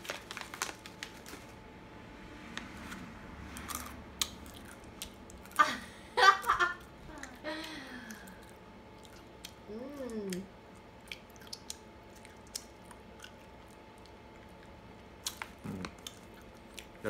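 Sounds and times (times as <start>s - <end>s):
short hum rising and falling: 1.6s - 5.0s
person chewing nuts: 3.6s - 5.6s, 7.6s - 17.0s.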